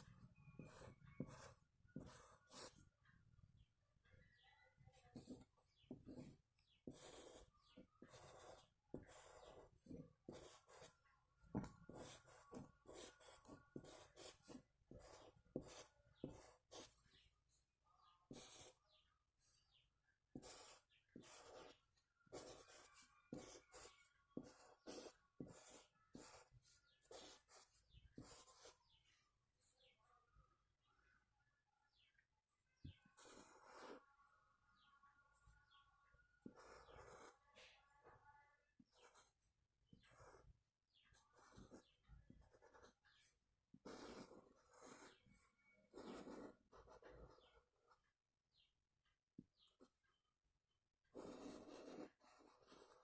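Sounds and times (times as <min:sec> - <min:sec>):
rasping drawing strokes: 0:00.0 - 0:02.8, 0:05.1 - 0:17.2, 0:18.3 - 0:19.7, 0:20.3 - 0:29.0, 0:41.2 - 0:45.4, 0:51.2 - 0:53.0.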